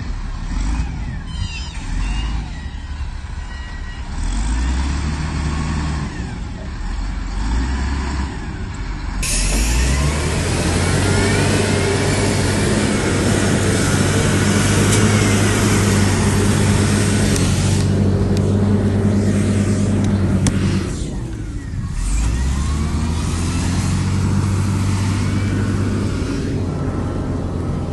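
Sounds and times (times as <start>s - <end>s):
heavy diesel engine running: 0.0s - 27.9s.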